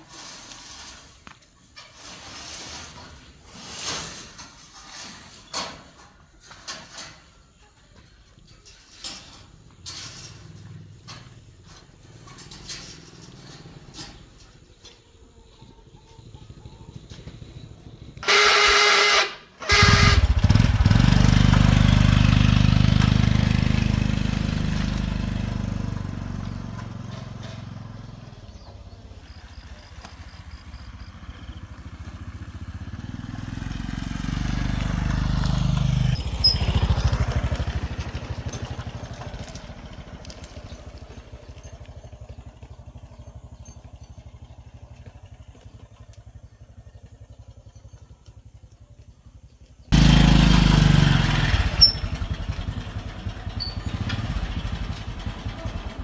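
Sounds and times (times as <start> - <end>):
small engine running: 16.2 - 56.0.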